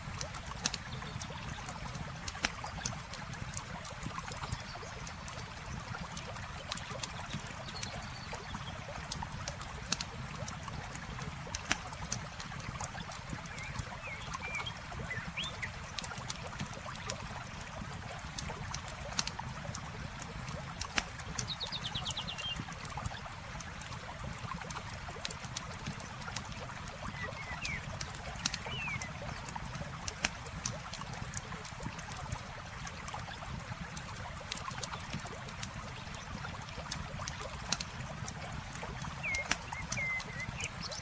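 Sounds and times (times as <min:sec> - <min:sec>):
trickle of running water: 0:00.0 - 0:41.0
bird chirps: 0:28.6 - 0:29.1, 0:39.2 - 0:41.0
bird trill: 0:39.2 - 0:40.6.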